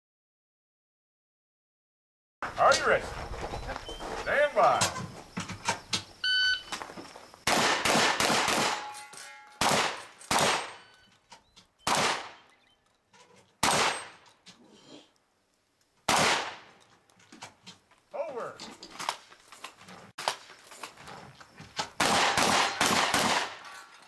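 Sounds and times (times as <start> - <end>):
shotgun blasts: 7.4 - 9.0, 9.6 - 10.8, 11.8 - 12.4, 13.6 - 14.2, 16.1 - 16.7, 22.0 - 23.6
steel target plates ringing: 8.7 - 11.1.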